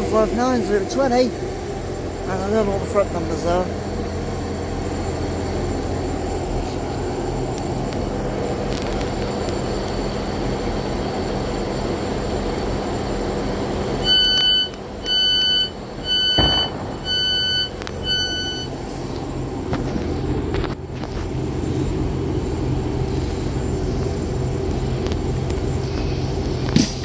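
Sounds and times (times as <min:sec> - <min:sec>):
diesel train engine rumbling: 0:00.0 - 0:27.0
door warning beeps: 0:14.0 - 0:18.8.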